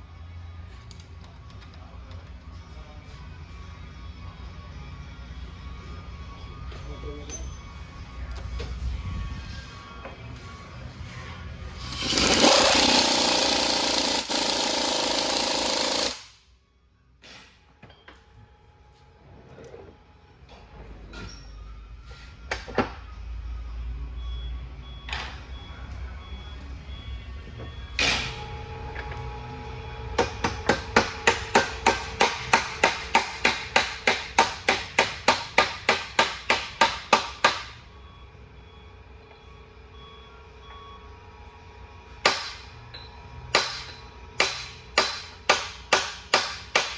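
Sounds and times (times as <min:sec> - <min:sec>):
pneumatic impact wrench running: 0:11.8 - 0:16.4
hammer striking metal: 0:30.2 - 0:37.8, 0:42.2 - 0:42.7, 0:43.5 - 0:46.9.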